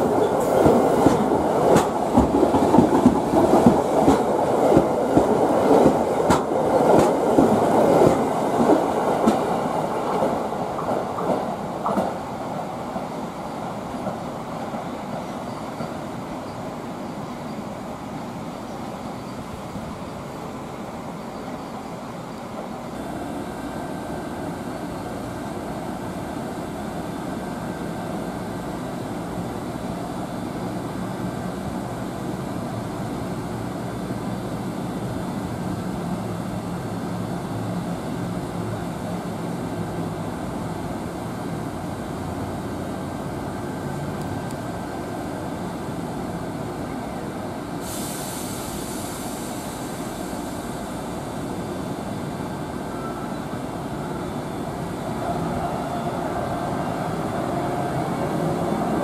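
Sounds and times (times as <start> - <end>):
train rumble and hum: 0.0 - 59.0
steady high hiss: 47.4 - 55.6.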